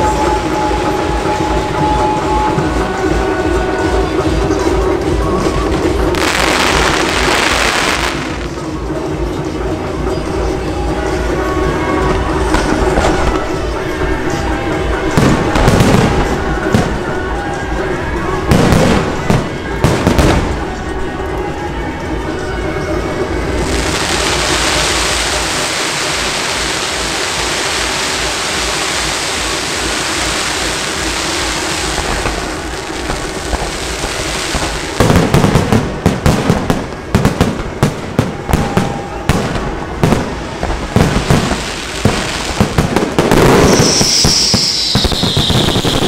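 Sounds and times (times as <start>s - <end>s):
falling firework whistle: 0.0s - 4.1s, 23.6s - 36.4s, 38.1s - 46.0s
fireworks crackling hiss: 0.0s - 8.8s, 23.5s - 46.0s
fireworks bangs: 0.0s - 9.4s, 11.8s - 21.1s, 22.8s - 46.0s.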